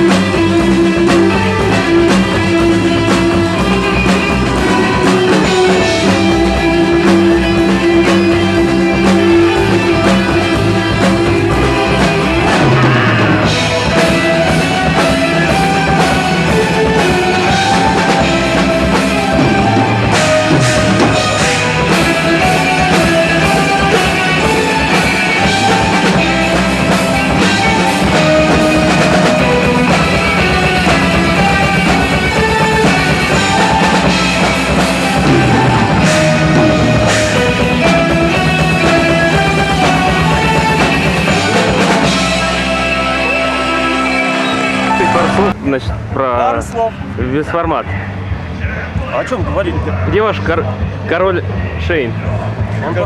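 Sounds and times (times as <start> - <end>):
electric guitar: 0.0 - 47.3
bass guitar: 0.0 - 53.0
drum kit: 0.0 - 53.0
keyboards: 0.0 - 53.0.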